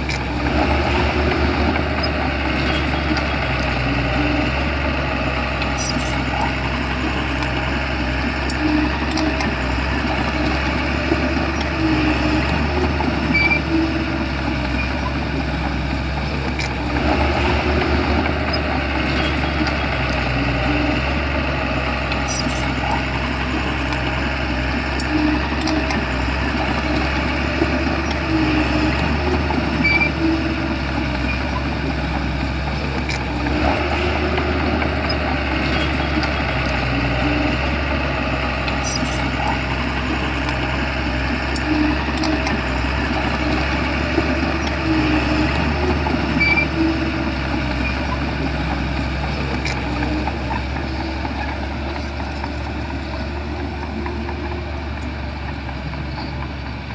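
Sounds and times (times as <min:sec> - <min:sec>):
bulldozer diesel engine: 0:00.0 - 0:56.9
short squeaks: 0:05.5 - 0:07.6, 0:10.3 - 0:15.3, 0:22.1 - 0:23.2, 0:23.8 - 0:31.8, 0:38.7 - 0:53.2.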